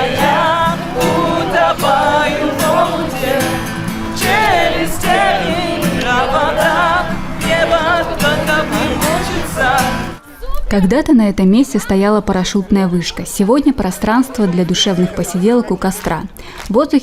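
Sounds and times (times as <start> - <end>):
instrumental accompaniment: 0.0 - 10.2
person singing with vibrato: 0.0 - 10.4.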